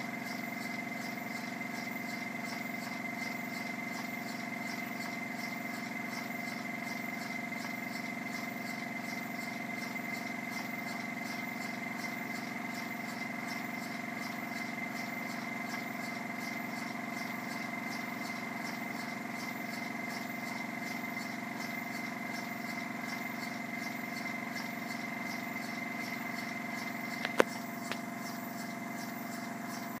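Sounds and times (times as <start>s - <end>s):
sharp click: 27.2s - 28.1s.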